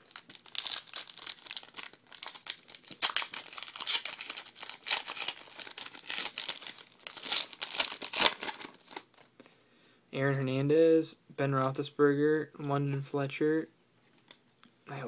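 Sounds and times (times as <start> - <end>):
wrapper being torn and crinkled: 0.0 - 9.3.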